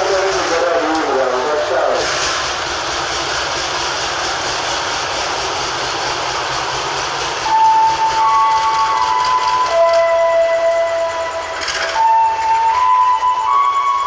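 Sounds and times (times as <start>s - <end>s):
train cars passing: 0.0s - 14.0s
held tone changing pitch: 7.4s - 14.0s.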